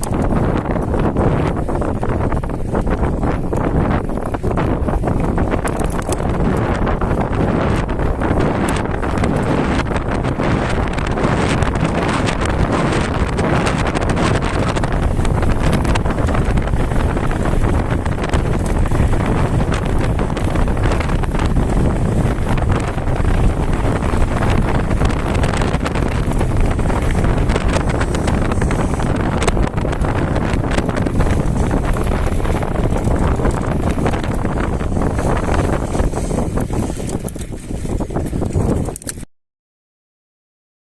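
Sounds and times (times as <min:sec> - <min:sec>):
bike rattling over rough ground: 0:00.0 - 0:39.3
wind buffeting microphone: 0:00.0 - 0:39.3.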